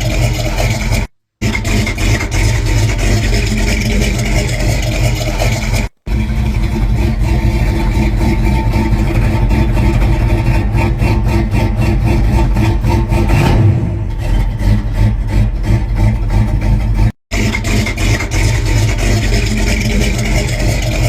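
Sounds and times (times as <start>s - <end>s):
truck engine idling: 0.0s - 13.3s, 15.2s - 17.1s.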